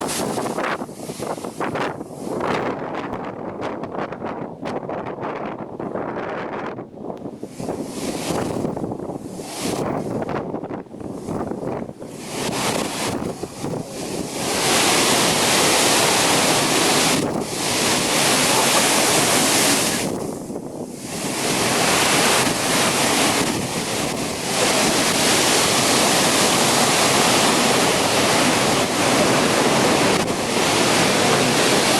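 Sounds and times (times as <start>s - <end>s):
strong wind buffeting microphone: 0.0s - 31.9s
heavy rain: 12.2s - 31.9s.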